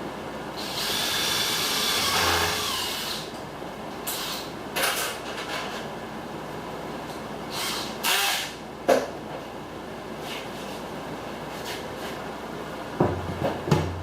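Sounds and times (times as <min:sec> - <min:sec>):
tool grinding metal: 0:01.9 - 0:03.0.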